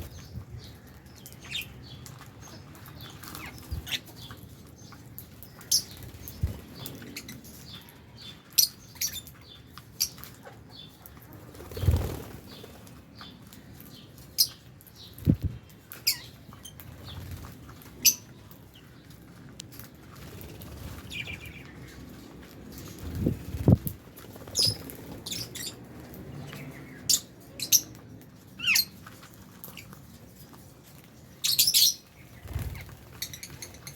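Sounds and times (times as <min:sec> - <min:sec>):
birds chirping: 0:00.0 - 0:33.9
wing flutters: 0:11.5 - 0:12.8, 0:32.4 - 0:33.9.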